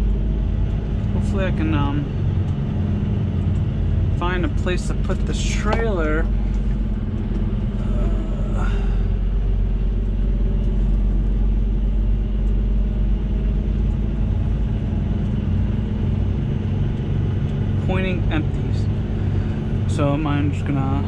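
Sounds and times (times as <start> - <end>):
diesel truck engine rumbling: 0.0 - 21.0.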